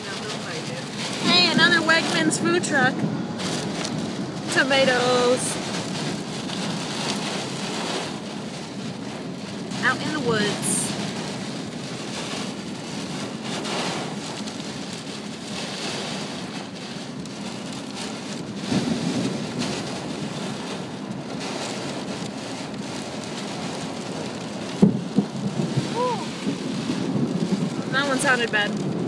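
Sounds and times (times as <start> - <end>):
heavy rain on a car: 0.0 - 29.0
loud thunder crack: 18.6 - 19.8, 24.8 - 29.0.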